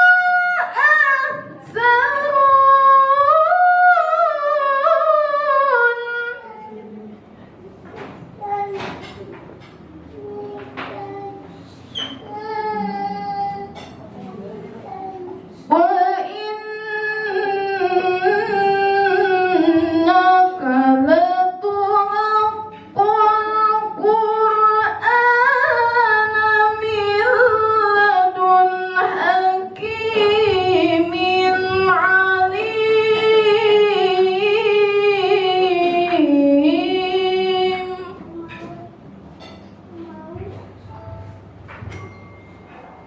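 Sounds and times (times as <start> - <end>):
woman chanting recitation: 0.0 - 7.2, 10.1 - 39.0.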